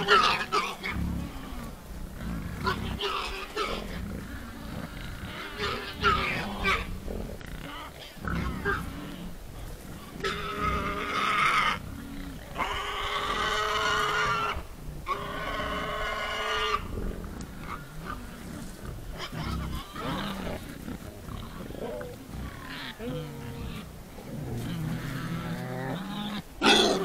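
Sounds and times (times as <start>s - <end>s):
wild boars grunting: 0.0s - 27.0s
boar squeals: 10.2s - 16.9s.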